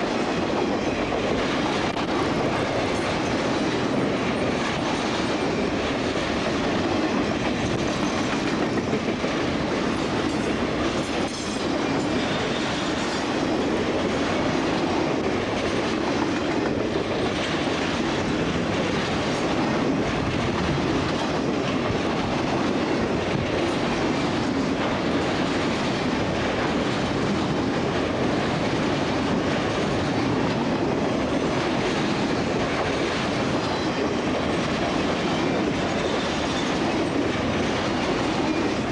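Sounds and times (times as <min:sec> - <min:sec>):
freight train wheels clacking: 0:00.0 - 0:38.9.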